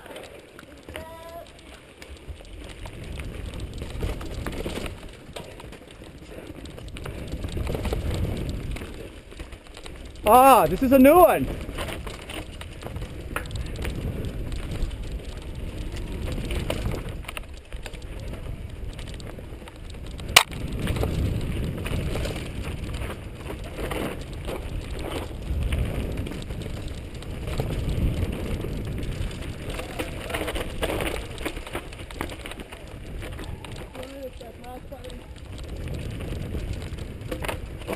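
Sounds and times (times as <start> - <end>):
bike clicks and rattles: 0.0 - 37.9
bike tyres rumbling on trail: 0.0 - 37.9
wind on microphone: 10.2 - 37.9.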